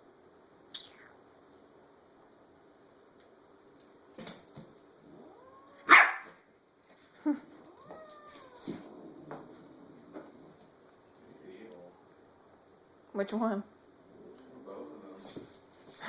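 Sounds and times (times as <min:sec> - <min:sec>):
cat yowling: 0:05.2 - 0:06.2, 0:07.7 - 0:08.9.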